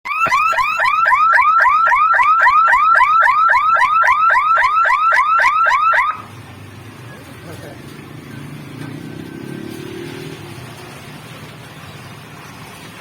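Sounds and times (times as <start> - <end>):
level crossing electronic alarm chirps: 0.1 - 6.3.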